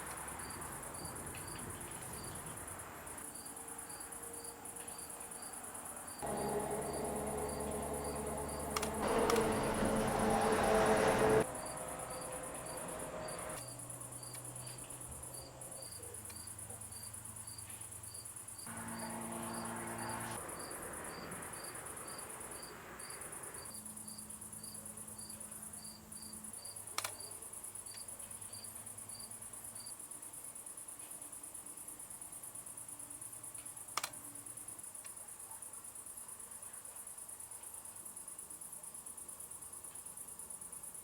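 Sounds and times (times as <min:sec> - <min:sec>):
high insect hiss: 0:00.0 - 0:35.2
cricket chirping: 0:00.0 - 0:41.0
sharp click: 0:27.0 - 0:27.2.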